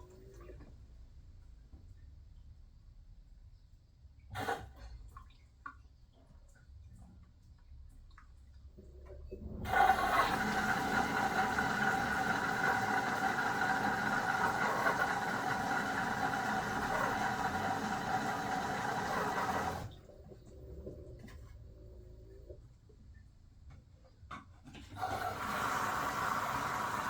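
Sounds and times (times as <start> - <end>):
washing machine whine and hiss: 9.2 - 22.5, 24.9 - 27.0.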